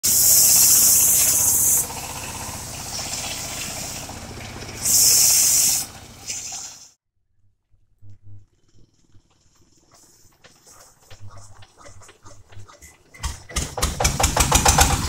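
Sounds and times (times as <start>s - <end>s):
circular saw blade cutting log: 0.0s - 6.8s
engine running steadily: 0.0s - 6.8s, 8.4s - 15.0s
loud high hiss: 0.0s - 7.0s.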